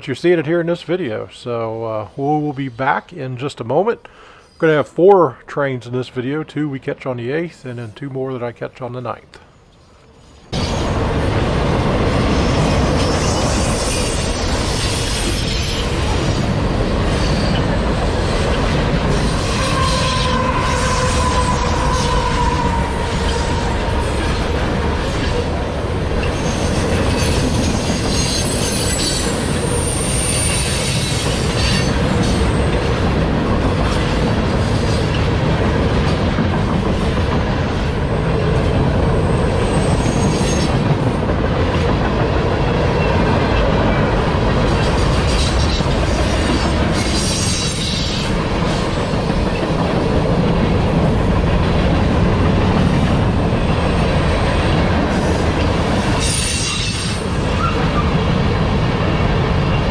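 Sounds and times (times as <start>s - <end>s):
train wheels rumbling on rail: 10.0s - 59.9s
high wheel squeal: 12.5s - 25.4s, 26.2s - 32.7s, 46.9s - 48.8s, 56.1s - 58.2s.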